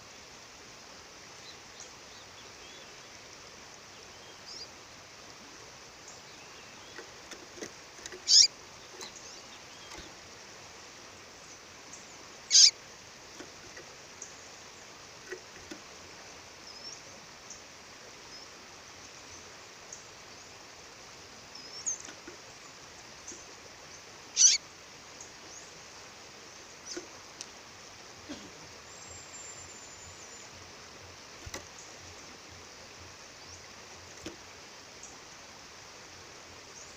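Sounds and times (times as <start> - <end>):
faint bird chirps: 3.8 - 4.8, 6.0 - 10.4, 11.4 - 20.6, 21.3 - 27.3, 28.2 - 30.8
songbird high calls: 4.0 - 4.8, 6.0 - 10.2, 11.5 - 15.8, 21.4 - 25.8.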